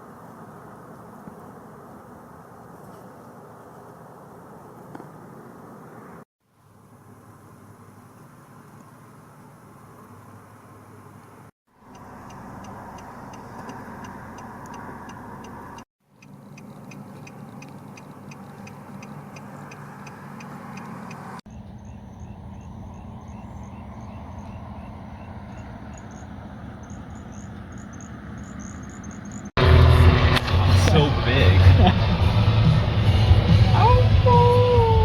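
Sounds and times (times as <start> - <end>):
low engine-like hum: 11.8 - 35.0
night animals chirping: 11.9 - 29.5.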